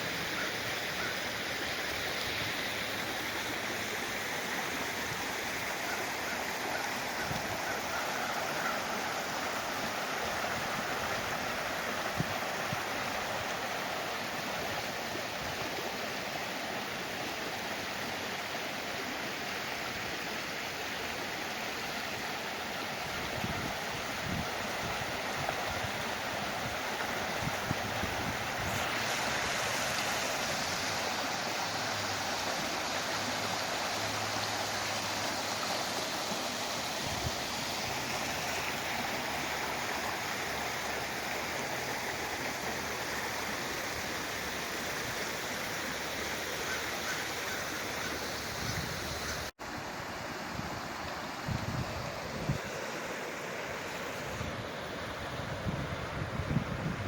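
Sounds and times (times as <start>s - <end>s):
flowing stream water rushing: 0.0s - 57.0s.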